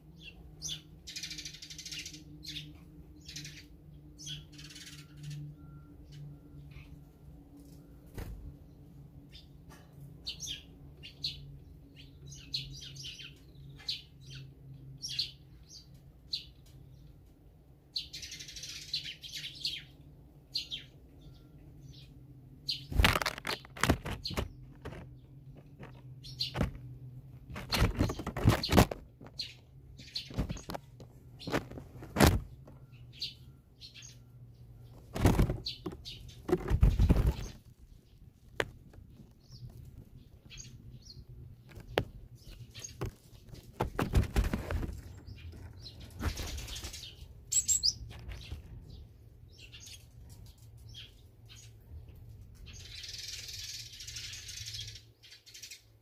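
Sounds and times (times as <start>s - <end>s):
songbirds chirping: 0.0s - 56.0s
thumps and wing flutters: 22.9s - 26.8s, 27.4s - 29.4s, 30.2s - 32.8s, 35.0s - 37.7s, 42.8s - 47.0s.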